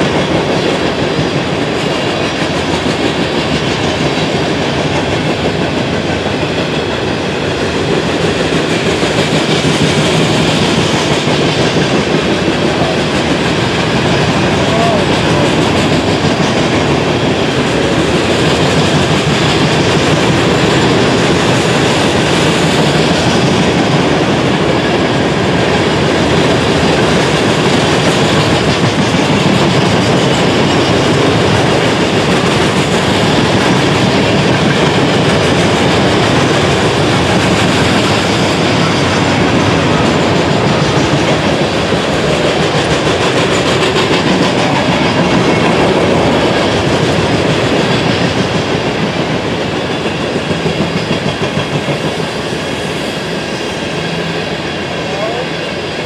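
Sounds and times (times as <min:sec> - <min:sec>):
freight train wheels rumbling on rail: 0:00.0 - 0:56.0.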